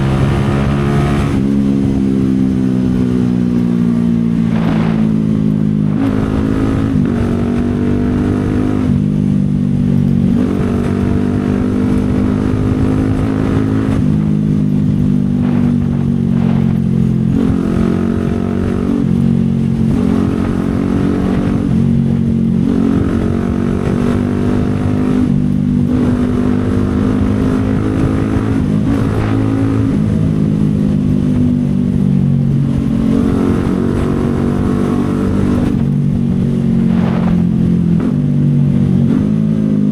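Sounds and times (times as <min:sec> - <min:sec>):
motorcycle engine riding: 0:00.0 - 0:39.9.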